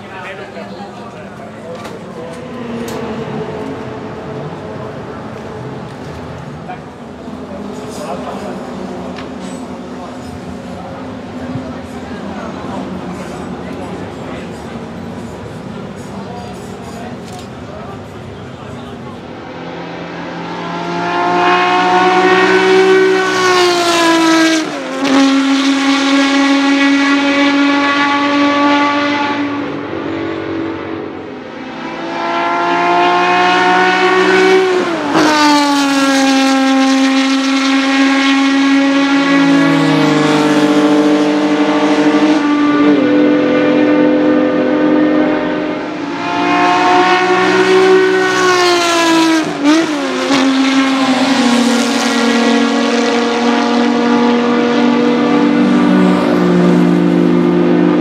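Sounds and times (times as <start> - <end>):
sports car passing at full throttle: 0.0 - 58.0.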